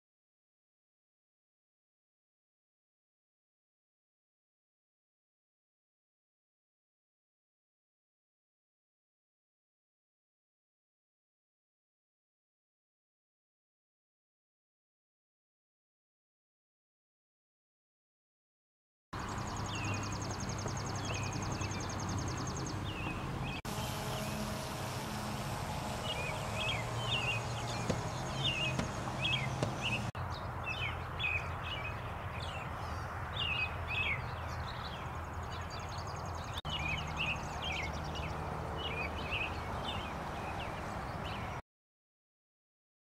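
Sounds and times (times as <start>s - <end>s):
rapid high bird trill: 19.2s - 30.1s
songbirds chirping: 19.2s - 41.6s
steady low hum: 23.1s - 30.2s.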